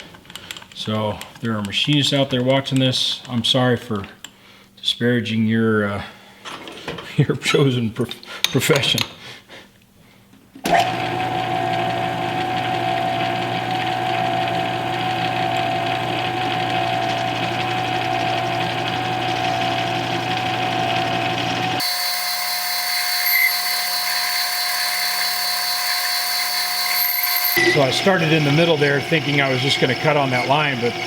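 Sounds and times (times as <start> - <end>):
metal lathe whining: 10.7 - 31.0.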